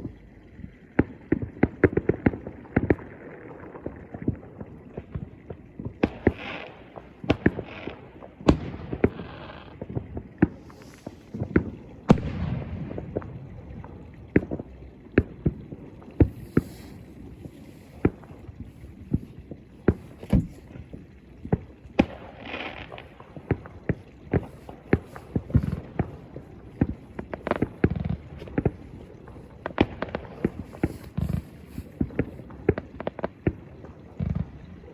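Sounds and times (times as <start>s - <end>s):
fireworks crackling: 6.1s - 34.6s
fireworks banging: 16.2s - 18.6s, 21.5s - 33.6s.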